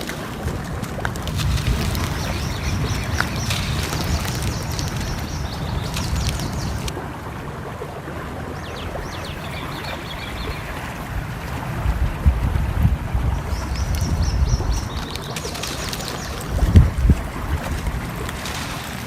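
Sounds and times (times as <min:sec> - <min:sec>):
wood fire crackling: 0:00.0 - 0:07.0, 0:13.0 - 0:19.0
flowing stream: 0:00.0 - 0:19.0
small birds chirping: 0:01.2 - 0:06.9, 0:08.4 - 0:11.4, 0:13.3 - 0:17.1.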